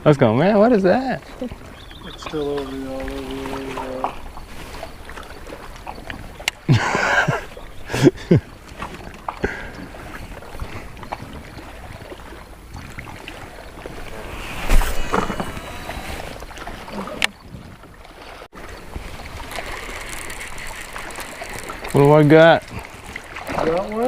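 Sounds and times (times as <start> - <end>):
low steady boat background: 0.0 - 24.0
brief rushing noise: 14.2 - 16.4.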